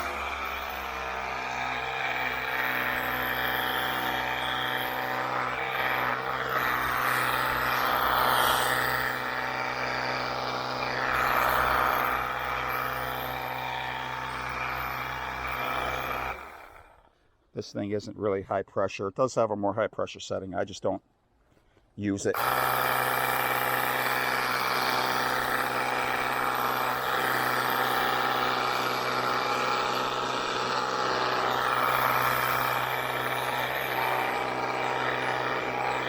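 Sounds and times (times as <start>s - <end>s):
pump motor humming: 22.4s - 36.0s.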